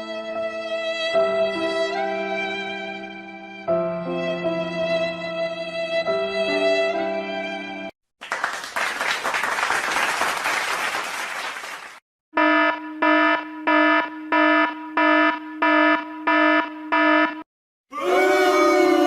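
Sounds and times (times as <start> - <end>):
electronic alarm buzzer: 12.4 - 17.5.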